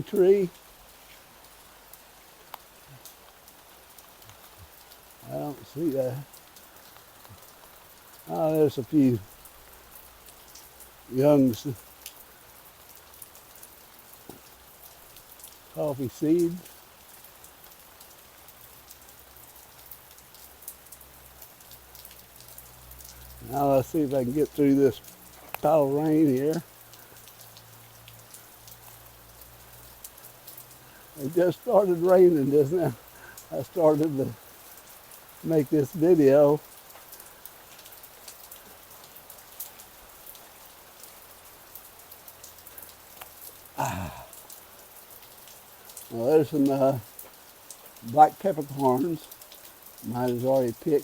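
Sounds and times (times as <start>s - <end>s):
rain hissing: 0.0s - 51.0s
drops ticking: 22.0s - 38.6s.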